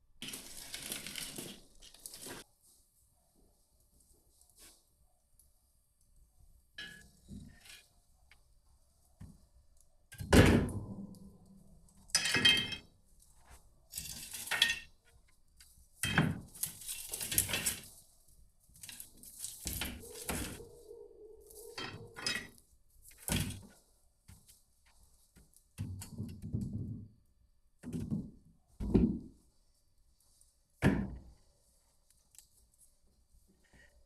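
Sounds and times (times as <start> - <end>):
hard objects knocking and clattering: 12.2 - 12.8, 21.7 - 22.5.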